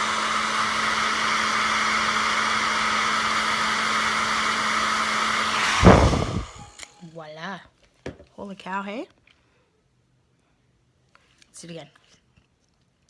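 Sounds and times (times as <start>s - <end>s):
hair dryer running: 0.0s - 7.0s.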